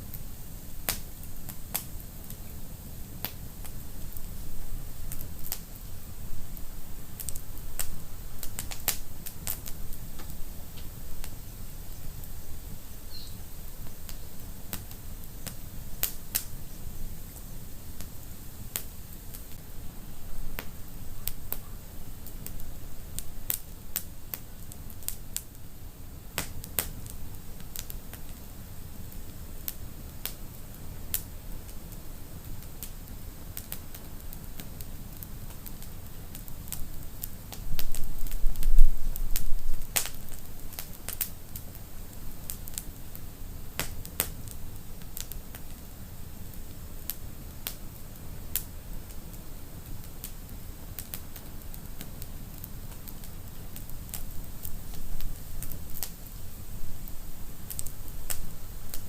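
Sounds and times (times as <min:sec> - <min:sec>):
fire crackles and pops: 0:00.0 - 0:59.0
fire rumbling in fireplace: 0:00.1 - 0:12.8, 0:32.4 - 0:59.0.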